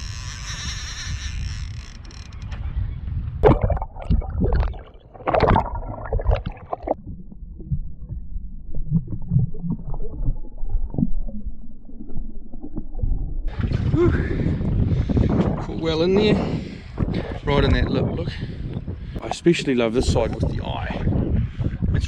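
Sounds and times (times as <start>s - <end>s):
handling noise on a small boat: 0.0s - 3.4s.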